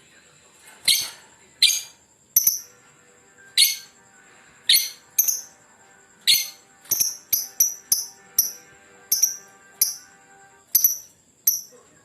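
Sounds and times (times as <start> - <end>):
lovebird shrill calls: 3.6 - 3.9, 4.7 - 5.5, 6.3 - 8.6.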